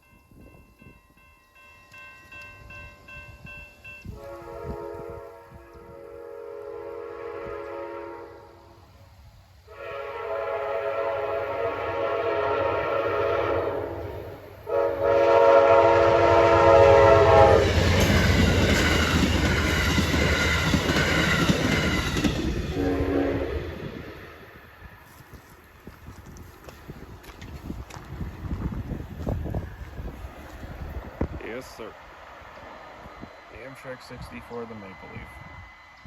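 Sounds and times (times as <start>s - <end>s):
train horn blasts: 4.0s - 8.8s, 9.6s - 24.1s
train rumble with clattering wheels: 10.2s - 36.0s.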